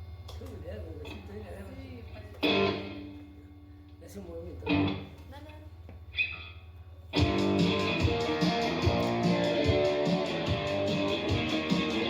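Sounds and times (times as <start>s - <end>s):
live electric guitar rock music: 2.4s - 3.1s, 4.6s - 5.1s, 7.1s - 12.0s.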